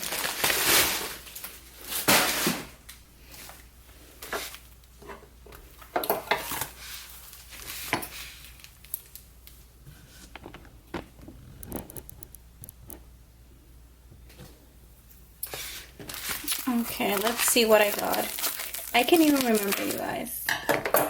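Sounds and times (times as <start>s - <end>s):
paper and cardboard rustling: 15.5s - 20.3s.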